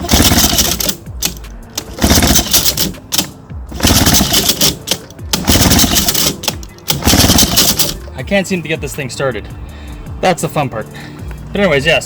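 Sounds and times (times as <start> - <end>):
outboard motor recoil starter cranking: 0.0 - 8.1.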